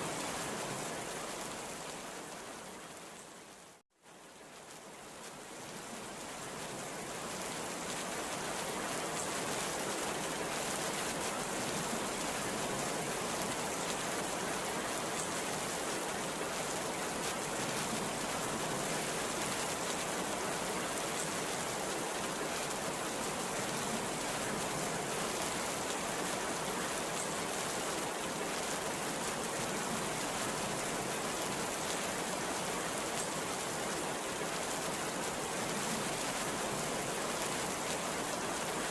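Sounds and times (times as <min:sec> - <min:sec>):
heavy rain pouring: 0:05.4 - 0:38.9.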